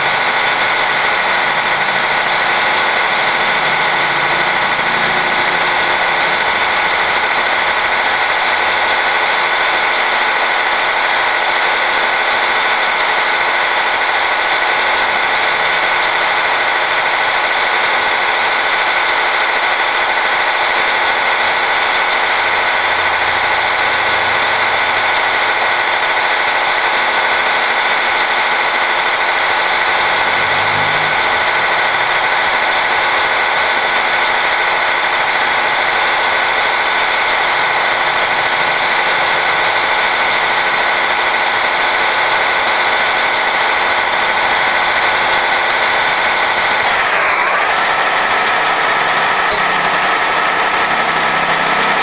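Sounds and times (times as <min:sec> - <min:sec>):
truck engine and road noise drone: 0:00.0 - 0:52.0
steady high tones: 0:29.4 - 0:52.0.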